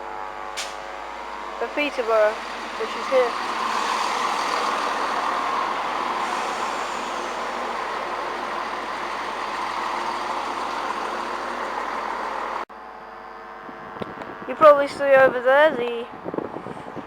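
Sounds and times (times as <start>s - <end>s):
train running: 0.1s - 12.7s.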